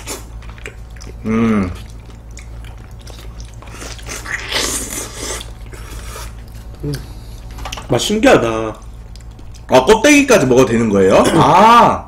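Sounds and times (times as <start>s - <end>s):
people chewing soft fruit: 0.0s - 7.9s, 8.5s - 10.0s
person humming briefly: 1.2s - 1.8s.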